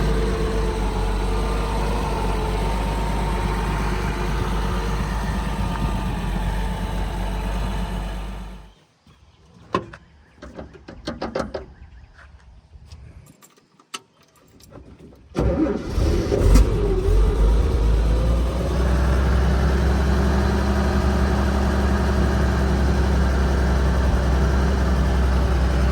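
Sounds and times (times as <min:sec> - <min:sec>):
engine running: 0:00.0 - 0:08.8, 0:15.4 - 0:25.9
engine starting: 0:15.3 - 0:18.5.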